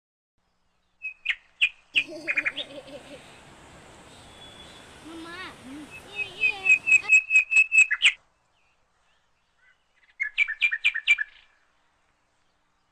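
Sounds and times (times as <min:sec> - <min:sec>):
bird chirping high notes: 0:03.3 - 0:08.2.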